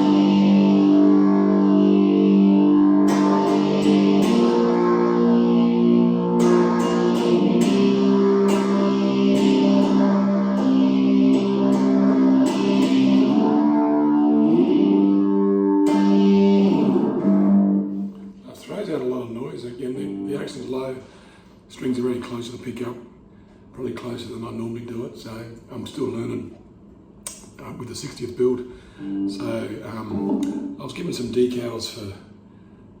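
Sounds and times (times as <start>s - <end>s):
distorted electric guitar chords: 0.0s - 18.4s, 20.0s - 20.8s, 29.0s - 30.9s.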